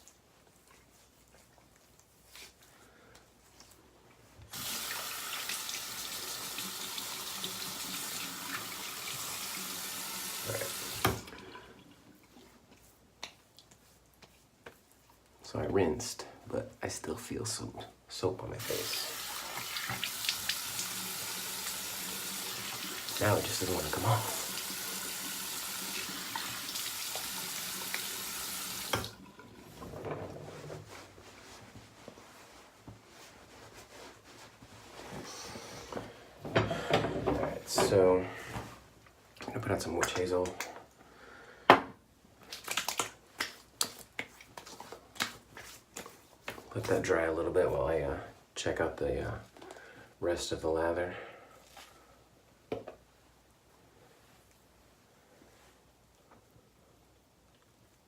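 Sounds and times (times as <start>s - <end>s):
sink tap running: 4.5s - 11.5s, 18.6s - 29.5s.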